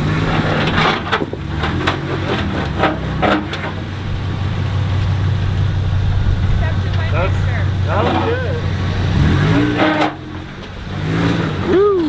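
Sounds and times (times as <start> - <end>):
truck engine running low: 0.0 - 12.0.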